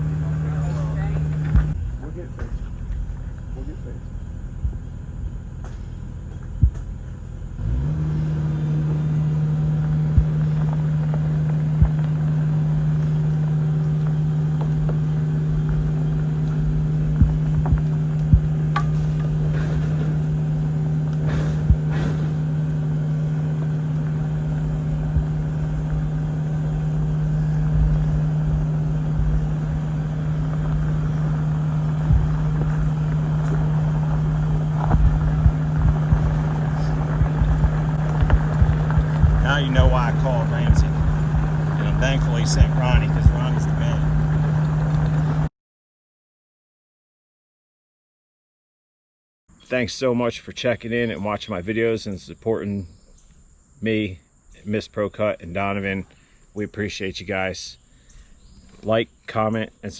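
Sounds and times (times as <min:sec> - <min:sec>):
heavy machinery engine running: 0:00.0 - 0:45.5.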